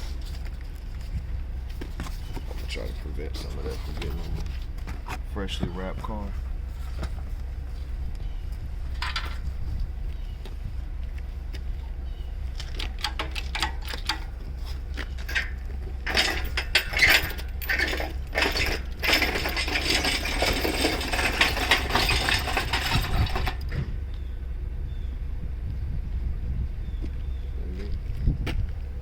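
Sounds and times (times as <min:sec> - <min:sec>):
steady low rumble: 0:00.0 - 0:29.0
metallic clicking and rattling: 0:12.6 - 0:23.8.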